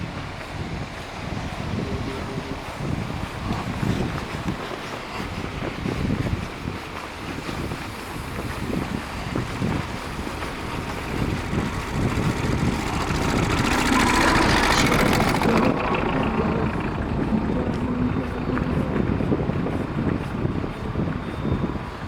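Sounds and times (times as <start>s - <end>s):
wind buffeting microphone: 0.0s - 22.0s
vehicle passing: 10.0s - 20.9s.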